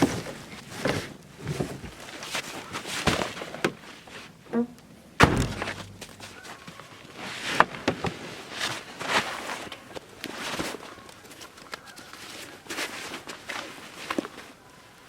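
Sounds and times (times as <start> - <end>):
sharp thump: 5.2 - 6.4.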